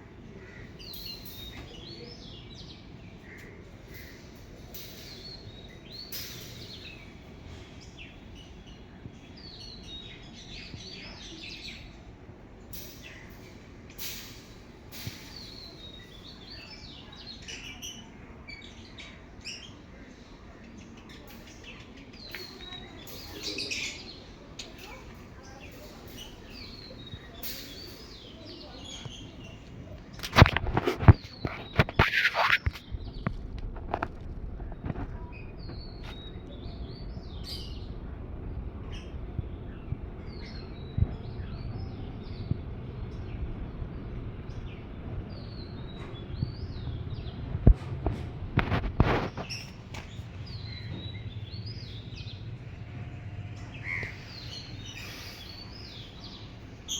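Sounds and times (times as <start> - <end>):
small birds chirping: 0.0 - 56.9
low background rumble: 32.8 - 56.9.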